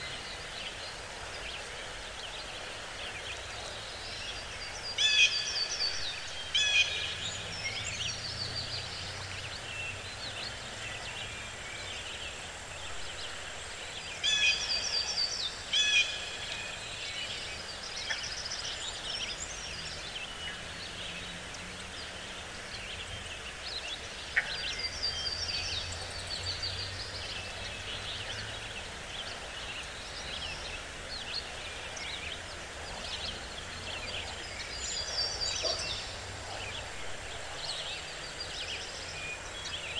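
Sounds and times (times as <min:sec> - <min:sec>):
birds chattering: 0:29.5 - 0:37.0.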